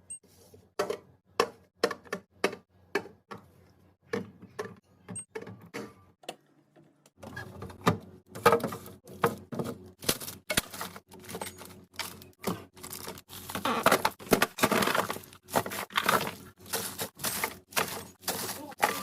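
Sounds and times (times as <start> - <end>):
containers clacking and knocking: 7.9 - 19.0
rustling and scraping: 8.4 - 19.0.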